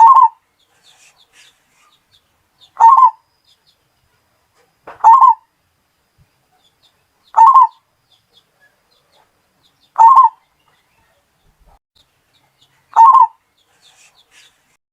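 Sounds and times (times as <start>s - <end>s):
dove cooing: 0.0s - 0.4s, 2.8s - 3.2s, 4.9s - 5.4s, 7.4s - 7.8s, 10.0s - 10.4s, 12.9s - 13.4s.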